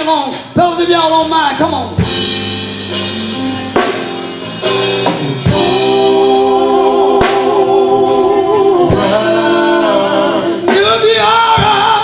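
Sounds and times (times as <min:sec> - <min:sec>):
band playing: 0:00.0 - 0:12.0
drum hits: 0:00.4 - 0:10.0
male vocal group singing: 0:05.3 - 0:12.0.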